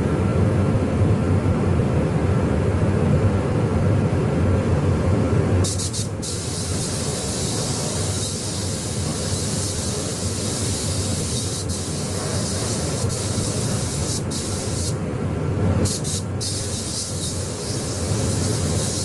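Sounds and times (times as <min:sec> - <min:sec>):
low steady rumble: 0:00.0 - 0:19.0
paint spray gun hissing: 0:05.6 - 0:15.0, 0:15.8 - 0:19.0.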